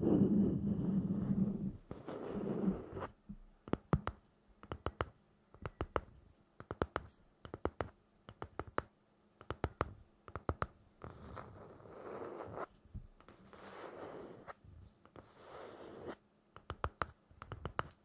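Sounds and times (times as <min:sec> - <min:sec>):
rustling scratching noise: 0:00.0 - 0:03.2, 0:11.0 - 0:16.2.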